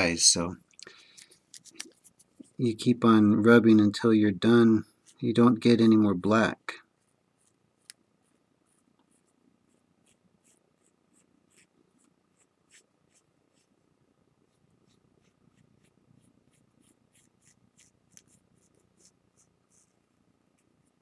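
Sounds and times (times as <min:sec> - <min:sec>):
cotton swab scratching on plate: 0:08.2 - 0:13.7, 0:14.5 - 0:20.0.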